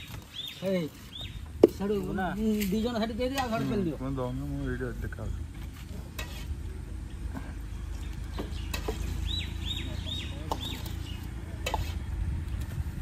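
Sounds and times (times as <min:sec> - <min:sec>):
bird chirping: 0:00.0 - 0:03.2, 0:07.6 - 0:11.4.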